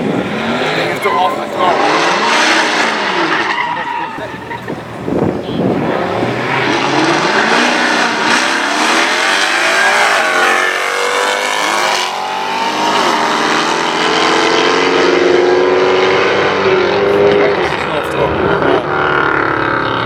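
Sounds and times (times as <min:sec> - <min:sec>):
car engine revving hard: 0:00.0 - 0:20.0.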